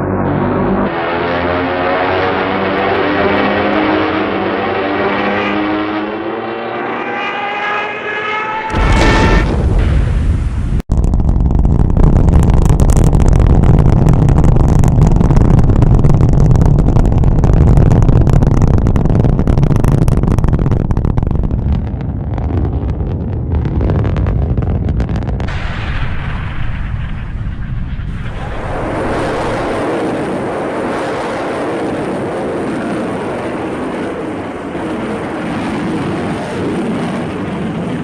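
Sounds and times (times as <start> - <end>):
rising machine whine: 0.0 - 9.8.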